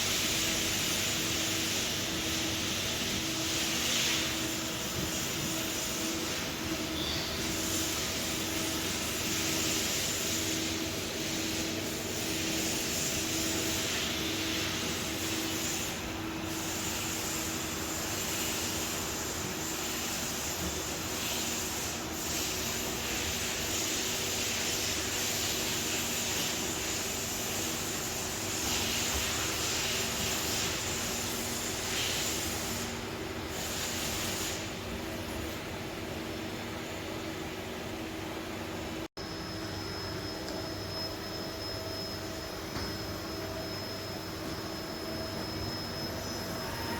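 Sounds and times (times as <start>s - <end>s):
steady hiss: 0.0s - 35.6s.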